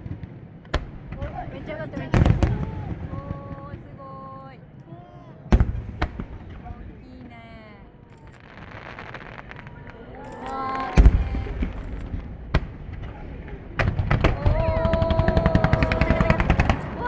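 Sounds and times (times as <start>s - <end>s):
fireworks heavy boom: 0.0s - 4.0s, 5.4s - 17.0s
fireworks crackling: 0.0s - 4.8s, 5.4s - 17.0s
sharp firework crack: 2.1s - 3.2s, 5.5s - 6.9s, 8.1s - 17.0s.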